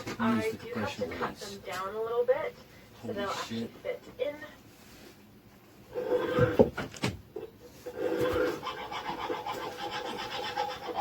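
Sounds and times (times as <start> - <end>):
hand saw cutting metal: 8.3 - 11.0.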